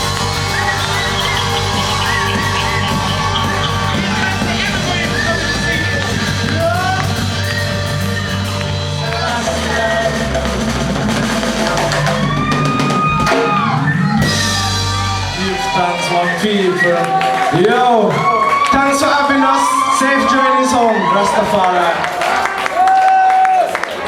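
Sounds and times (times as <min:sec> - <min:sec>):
drum kit: 0:00.0 - 0:17.4
deep bass line: 0:00.0 - 0:17.8
reggae band playing: 0:00.0 - 0:19.9.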